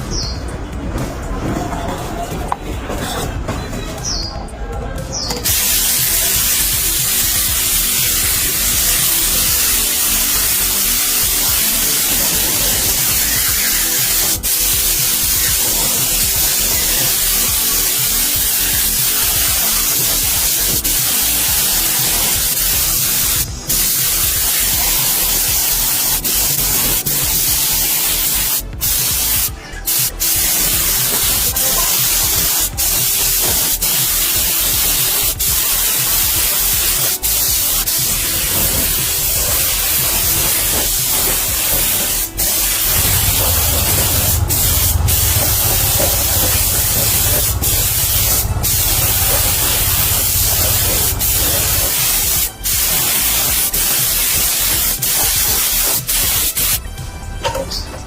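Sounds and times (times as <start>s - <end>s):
compressed air hissing: 5.4s - 56.8s
low hum: 42.9s - 51.8s.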